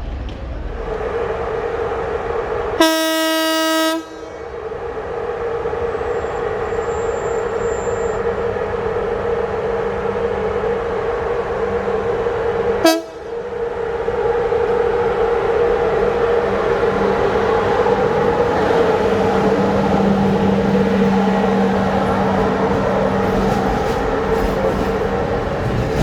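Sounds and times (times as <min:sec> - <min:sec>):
locomotive humming: 0:02.2 - 0:26.0
locomotive horn: 0:02.8 - 0:04.4, 0:12.8 - 0:13.3, 0:16.2 - 0:24.5.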